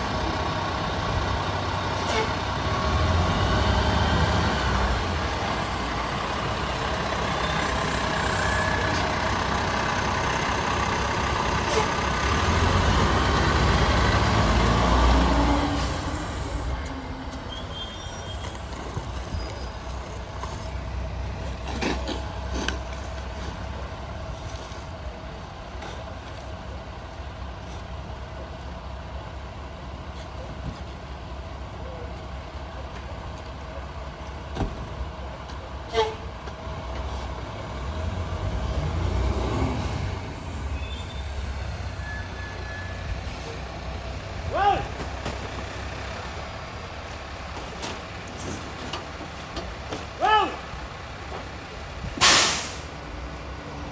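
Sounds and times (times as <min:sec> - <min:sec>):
garbage truck engine running: 0:00.0 - 0:50.1.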